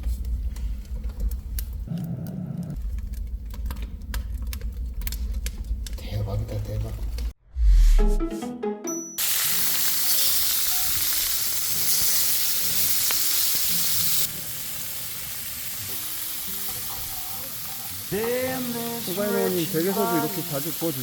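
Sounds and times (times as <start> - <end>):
food sizzling on a grill: 9.2 - 21.0.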